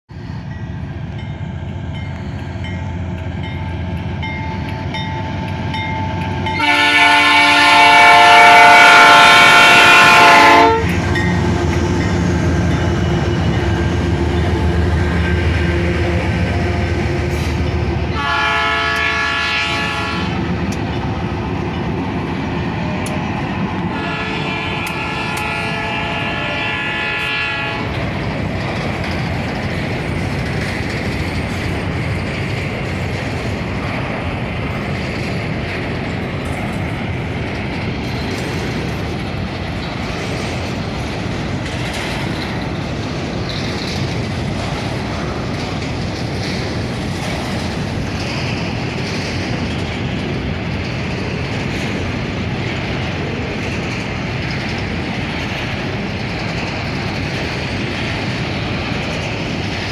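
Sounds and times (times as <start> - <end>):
locomotive horn: 6.5 - 11.9, 15.1 - 20.4, 23.9 - 28.0.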